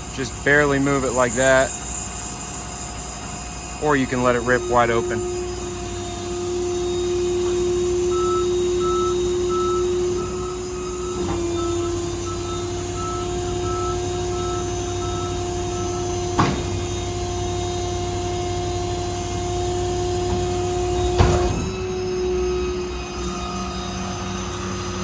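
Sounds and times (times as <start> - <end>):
hydraulic crane whine: 0.0 - 25.0
sharp knocks: 16.3 - 17.0.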